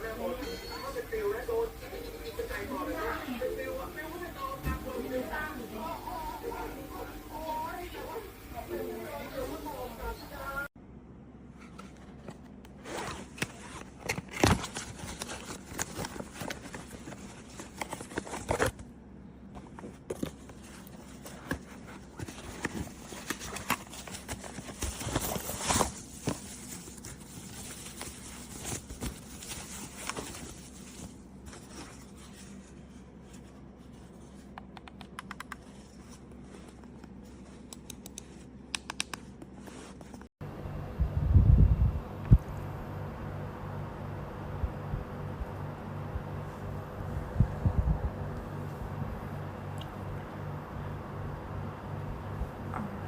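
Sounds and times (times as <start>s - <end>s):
packaging tearing and crinkling: 13.2s - 18.8s.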